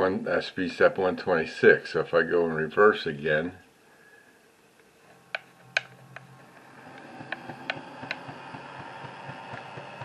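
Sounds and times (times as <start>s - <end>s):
small electric motor humming: 5.1s - 10.0s
sharp clicks: 5.2s - 8.8s.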